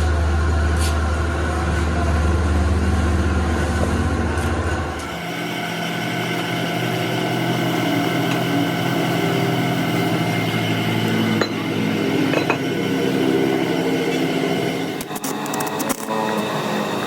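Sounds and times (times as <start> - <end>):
machine tool motor hum: 3.5 - 17.0.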